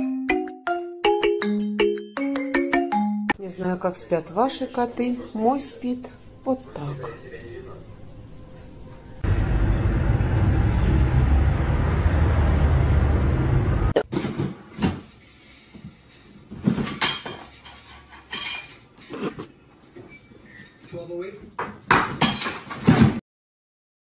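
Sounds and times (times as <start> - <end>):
loud street traffic: 9.1 - 14.0.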